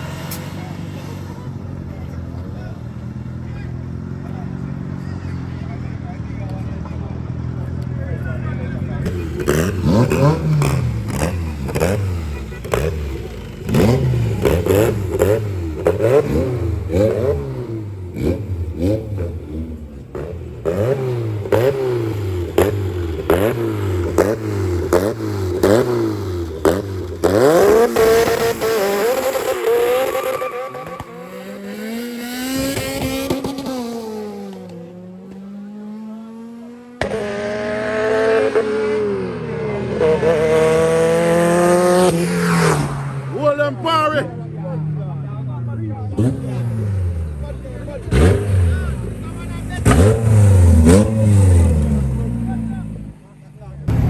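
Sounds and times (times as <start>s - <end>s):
race car accelerating away: 0.0s - 54.0s
race car engine revving: 0.0s - 54.0s
loud engine revving: 8.8s - 44.6s, 46.0s - 53.2s.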